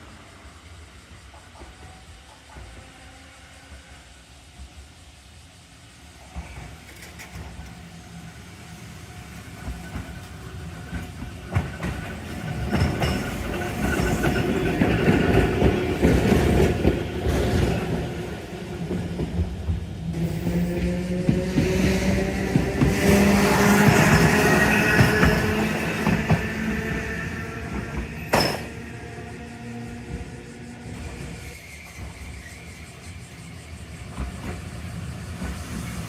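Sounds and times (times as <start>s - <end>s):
tram wheels clattering over rails: 6.1s - 32.8s.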